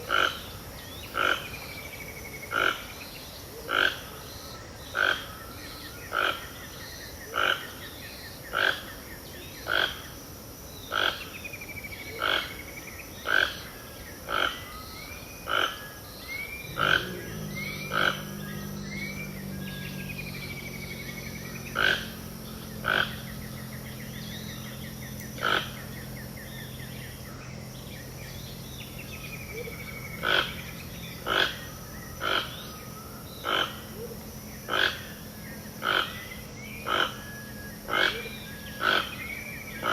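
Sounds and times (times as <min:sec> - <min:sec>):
loud sharp animal call: 0:03.6 - 0:04.3, 0:15.4 - 0:26.3, 0:29.5 - 0:39.9
whistled bird calls: 0:11.8 - 0:39.9
steady low drone: 0:16.0 - 0:39.9.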